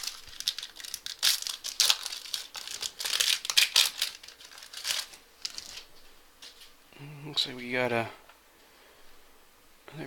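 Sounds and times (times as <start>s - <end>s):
foil pack tearing and crinkling: 0.0s - 5.9s.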